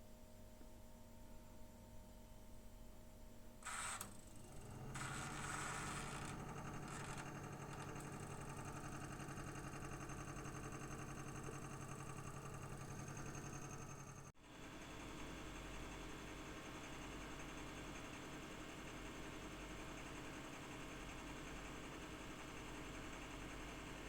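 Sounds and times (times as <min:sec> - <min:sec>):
electric mixer motor: 0:03.6 - 0:14.3.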